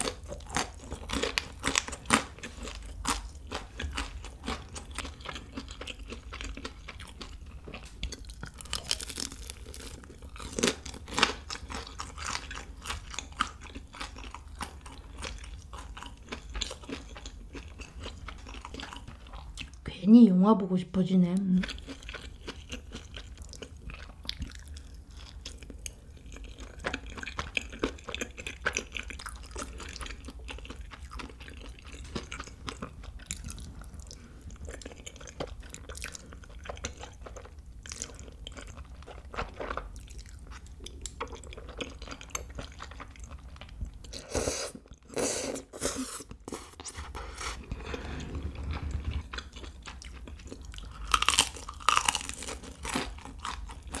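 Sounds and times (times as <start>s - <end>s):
wet chewing: 0.0s - 19.8s, 21.6s - 45.2s, 46.0s - 54.0s
loud crunchy bite: 50.0s - 54.0s.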